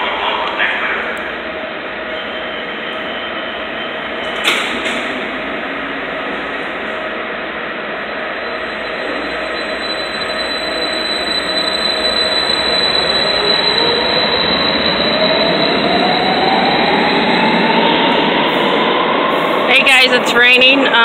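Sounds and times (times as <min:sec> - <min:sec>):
metro train rumble: 0:00.0 - 0:21.0
train whine rising in pitch: 0:00.0 - 0:21.0.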